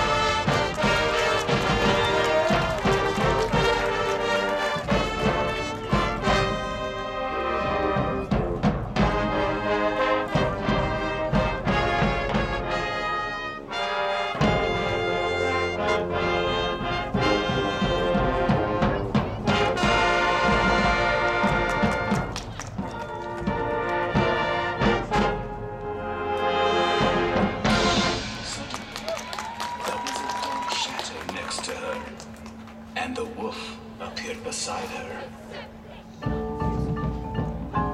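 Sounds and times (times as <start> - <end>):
brass instruments playing: 0.0 - 29.1
drums and timpani: 0.0 - 29.7, 35.7 - 37.9.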